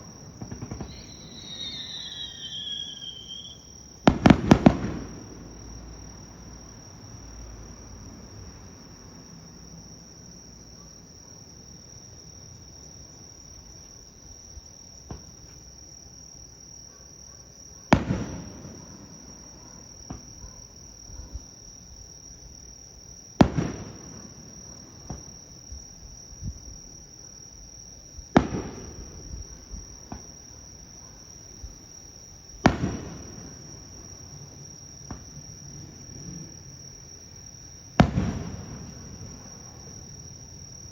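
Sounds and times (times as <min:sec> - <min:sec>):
firework shells booming: 0:00.0 - 0:05.8, 0:17.9 - 0:19.2, 0:23.4 - 0:25.4, 0:28.3 - 0:30.4, 0:32.6 - 0:36.6, 0:37.9 - 0:40.2
insects chirring: 0:00.0 - 0:40.9.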